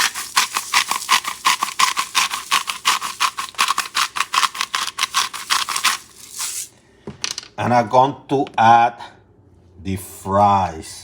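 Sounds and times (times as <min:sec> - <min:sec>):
salt shaker rattling: 0:00.0 - 0:06.7.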